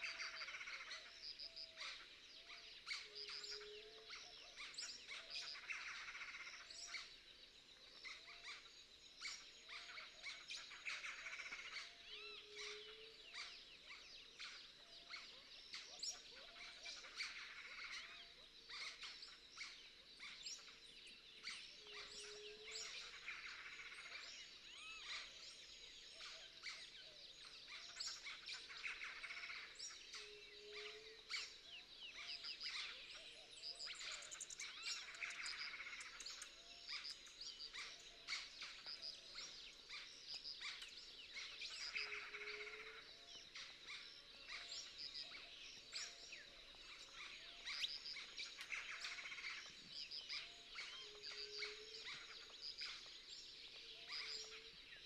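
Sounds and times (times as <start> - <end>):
birds chirping: 27.5 - 55.0.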